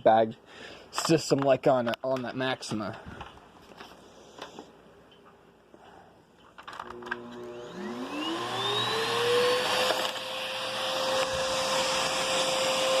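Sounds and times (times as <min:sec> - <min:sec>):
vacuum cleaner motor whine: 0:06.8 - 0:13.0.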